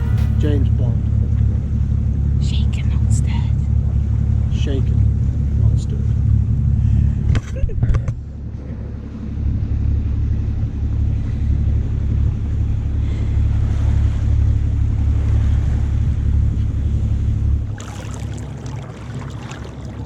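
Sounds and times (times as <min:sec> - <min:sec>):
boat engine humming: 0:00.0 - 0:20.0
water rushing: 0:17.6 - 0:20.0.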